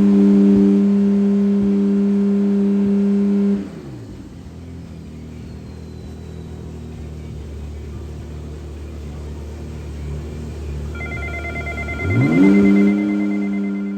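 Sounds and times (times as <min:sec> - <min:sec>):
car engine idling and revving: 0:00.0 - 0:13.9
pulsing high electronic beep: 0:11.0 - 0:13.9.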